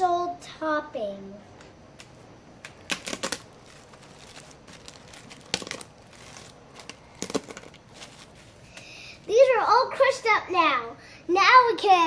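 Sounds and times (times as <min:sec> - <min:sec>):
corn chips crunching: 0:02.7 - 0:08.8.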